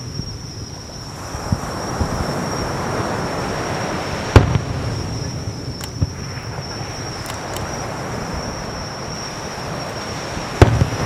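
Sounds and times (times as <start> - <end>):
high insect-like whine: 0.0 - 11.0
distant fireworks thumps: 4.2 - 7.8, 9.8 - 11.0
loud firework bang: 4.3 - 5.3, 10.6 - 11.0.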